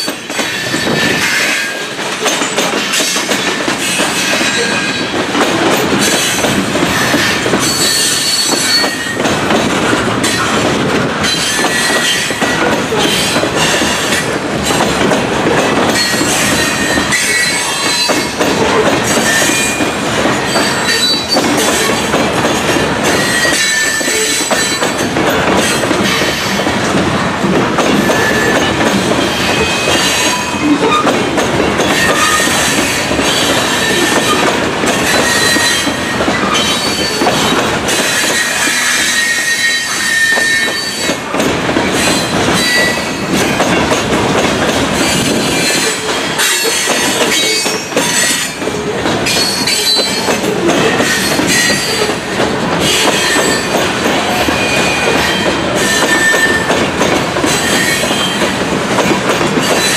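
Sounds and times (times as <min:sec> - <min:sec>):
train wheels clattering on rails: 0:00.0 - 0:59.9
high-pitched wheel squeals: 0:31.9 - 0:32.7, 0:35.0 - 0:37.2, 0:38.0 - 0:41.1, 0:54.6 - 0:56.7.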